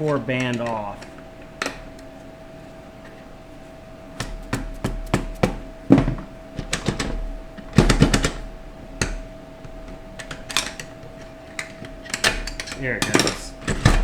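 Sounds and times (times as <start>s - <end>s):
faint steady hum: 0.0s - 14.0s
metal parts clinking and knocking: 10.2s - 14.0s.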